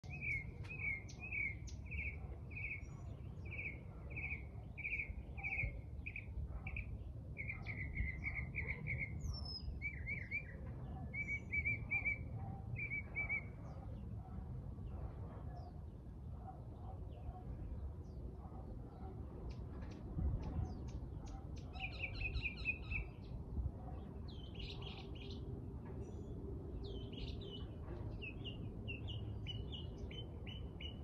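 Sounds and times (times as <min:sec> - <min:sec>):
bird singing repeated chirps: 0:00.0 - 0:13.6, 0:21.6 - 0:23.3
distant high bird calls: 0:00.0 - 0:17.7, 0:18.4 - 0:31.0.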